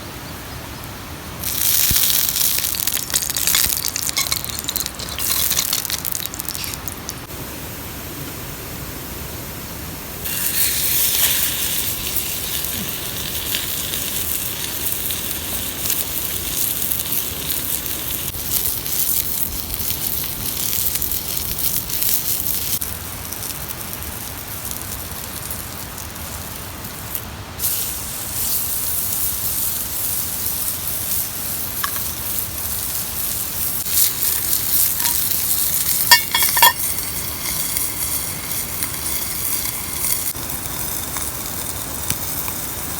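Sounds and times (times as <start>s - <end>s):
food sizzling on griddle: 1.4s - 7.3s, 10.2s - 42.9s
light metallic clinks: 35.9s - 37.9s.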